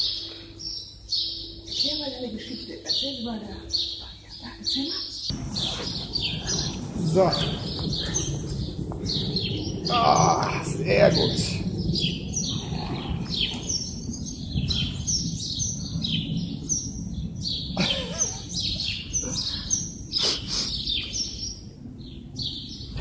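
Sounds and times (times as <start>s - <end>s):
small birds chirping: 0.0s - 23.0s
steady low rumble: 5.3s - 23.0s.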